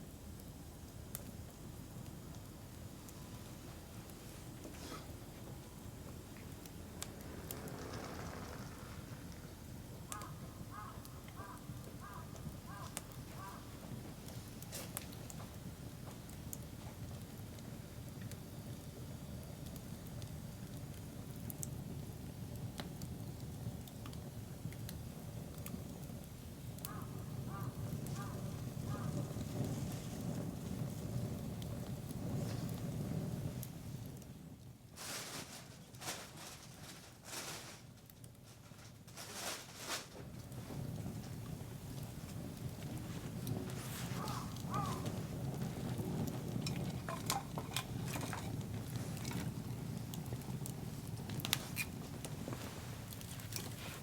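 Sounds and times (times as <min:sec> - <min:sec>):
campfire crackling: 0:00.0 - 0:54.0
bird calling: 0:44.2 - 0:45.1.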